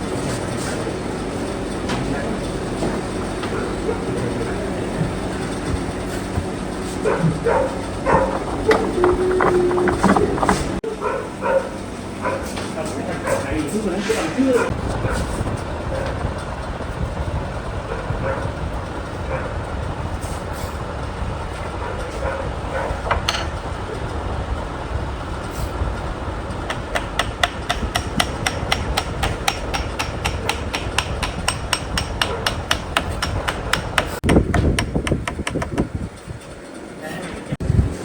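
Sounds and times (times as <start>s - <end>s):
low rumble: 5.4s - 10.8s
hammer striking wood: 8.1s - 10.8s, 26.7s - 35.9s.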